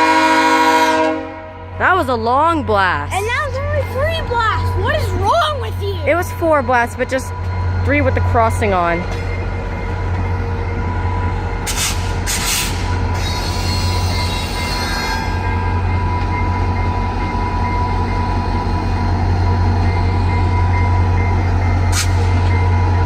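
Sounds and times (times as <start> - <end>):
passenger train rolling past: 0.0 - 23.0
high wheel squeal: 11.0 - 15.7.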